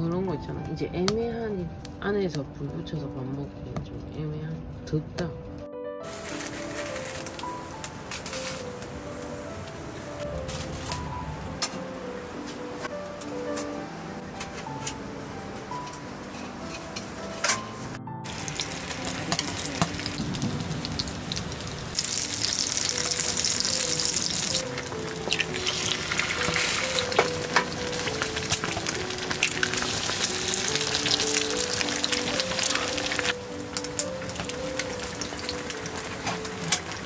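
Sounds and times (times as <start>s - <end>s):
background music melody: 0.0s - 37.0s
food sizzling in a frying pan: 6.1s - 10.9s, 18.2s - 37.0s.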